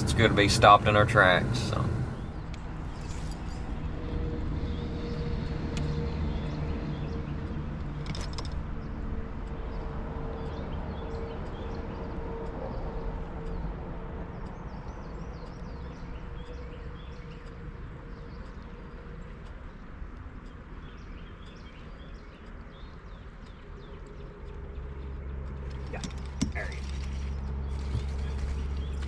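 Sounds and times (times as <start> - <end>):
engine running steadily: 0.0 - 2.4.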